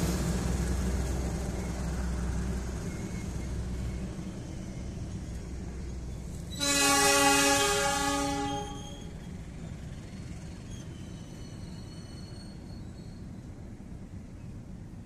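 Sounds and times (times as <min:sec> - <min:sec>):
diesel locomotive engine rumble: 0:00.0 - 0:15.0
train coaches rolling past: 0:00.0 - 0:15.0
multi-tone train horn blast: 0:06.5 - 0:09.1.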